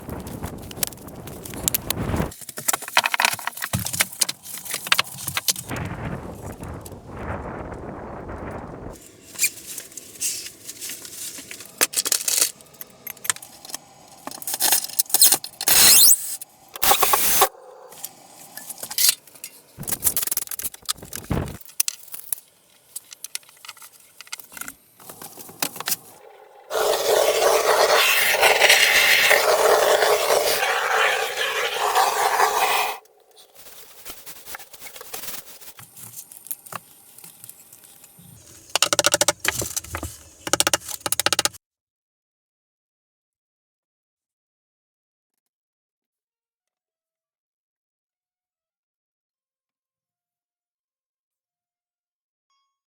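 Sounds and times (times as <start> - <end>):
objects scraping and clattering: 0.0 - 7.0, 8.9 - 41.6
steady noise: 5.7 - 21.6.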